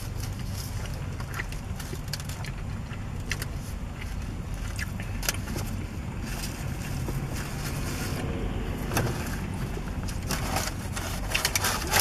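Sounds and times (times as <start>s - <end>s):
person chewing: 0.0s - 7.9s
car interior rumble: 0.0s - 12.0s.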